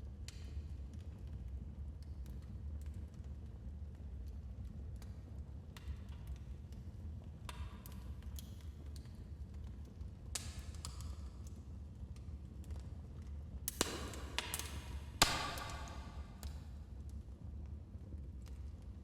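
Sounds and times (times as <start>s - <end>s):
wood fire crackling: 13.7s - 16.5s.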